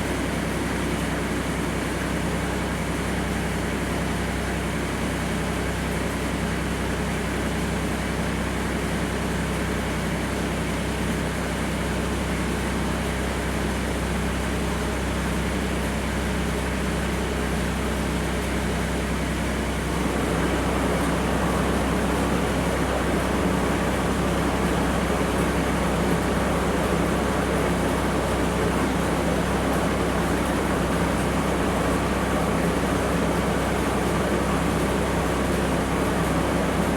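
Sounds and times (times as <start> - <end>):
snowblower running: 13.0 - 36.9
tractor diesel engine running: 17.3 - 36.9.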